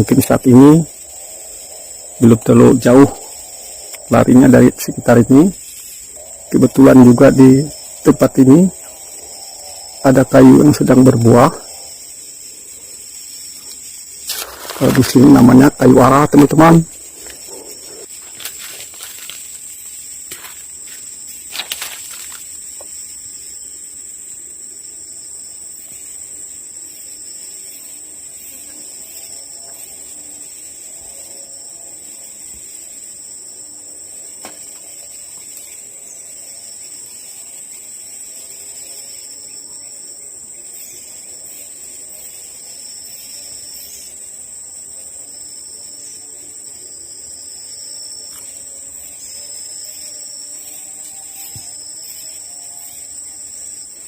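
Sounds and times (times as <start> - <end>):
faint low wavering calls: 0.0 - 19.1
insects droning: 0.0 - 54.0.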